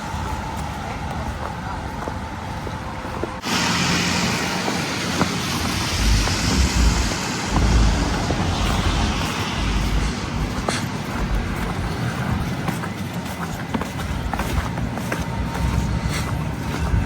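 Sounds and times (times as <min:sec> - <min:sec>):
low rumbles: 0:00.0 - 0:17.0
street traffic noise: 0:00.0 - 0:17.0.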